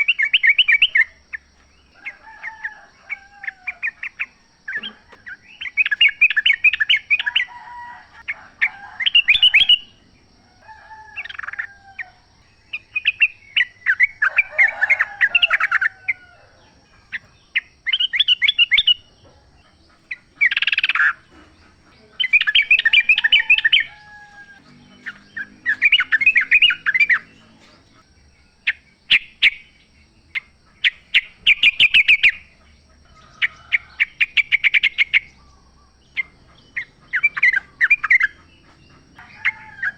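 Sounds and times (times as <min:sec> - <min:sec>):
bulbul singing chattering notes: 0:20.0 - 0:28.0.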